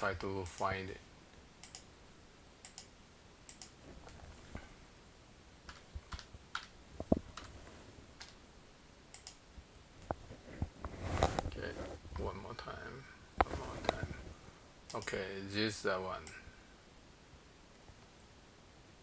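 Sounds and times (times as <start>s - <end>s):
mouse and keyboard clicks: 1.6s - 1.9s, 5.7s - 7.5s.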